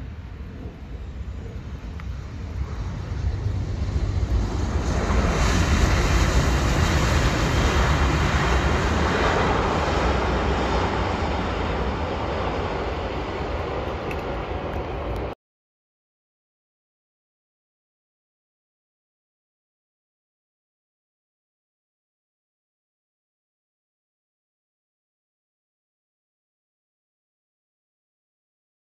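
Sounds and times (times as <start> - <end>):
jet engines roaring: 0.0 - 15.4.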